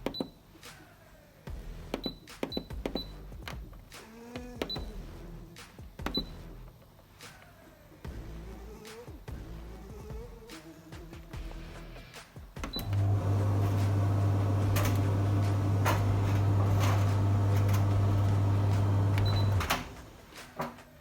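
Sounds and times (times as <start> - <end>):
tumble dryer humming: 12.6 - 20.8
dryer clicks: 12.6 - 21.0.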